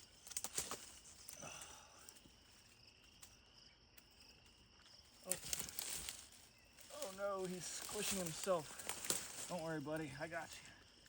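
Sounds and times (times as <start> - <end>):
rustles and knocks of rock: 0.0 - 1.4, 4.0 - 10.1
faint insect chirring: 0.0 - 11.0.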